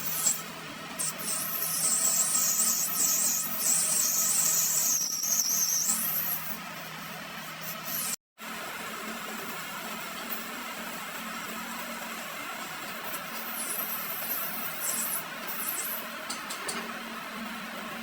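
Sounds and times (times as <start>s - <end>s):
high hiss of cutting steel: 1.0s - 6.5s, 13.5s - 16.0s.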